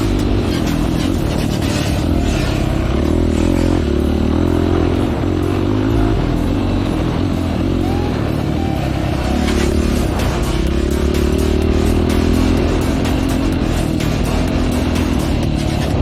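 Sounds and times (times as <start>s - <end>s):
vehicle clattering over rough ground: 0.0s - 8.3s
off-road vehicle engine revving: 0.0s - 16.0s.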